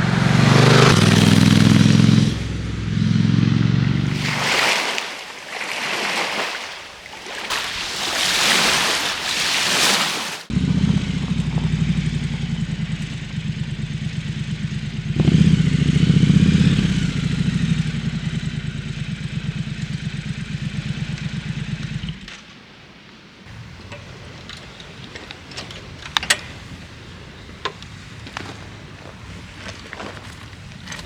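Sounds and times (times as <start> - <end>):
motorcycle engine running: 0.0 - 4.5, 10.5 - 22.4, 23.5 - 31.0.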